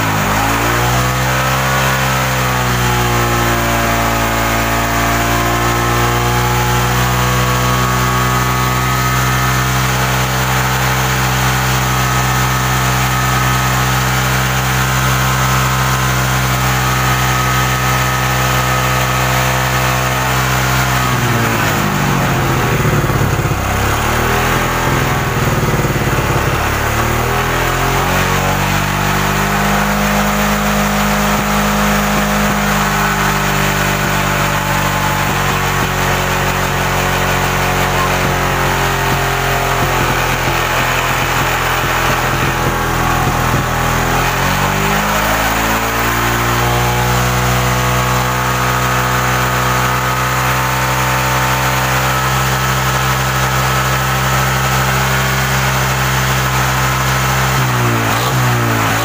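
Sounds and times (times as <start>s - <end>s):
motorcycle engine idling: 20.3s - 27.8s, 30.9s - 45.0s.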